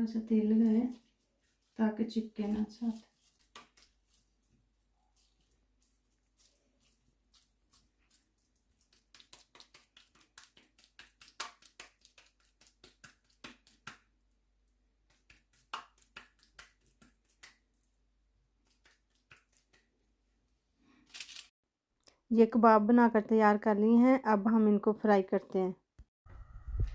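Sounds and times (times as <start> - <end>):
hands squelching minced meat: 0.2 - 20.1.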